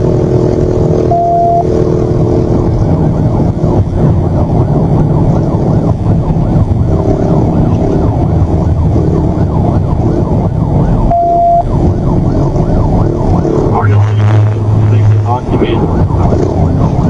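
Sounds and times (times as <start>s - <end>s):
engine and road noise: 0.0s - 17.0s
police siren yelp: 1.0s - 1.7s, 2.4s - 17.0s
short steady beep: 1.0s - 1.7s, 11.1s - 11.7s.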